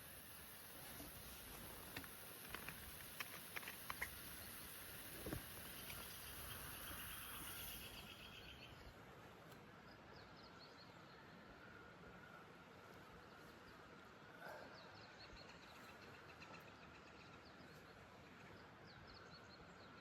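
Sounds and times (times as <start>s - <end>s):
small clicks: 1.4s - 4.6s
faint bird chirps: 5.6s - 9.0s, 13.2s - 20.0s.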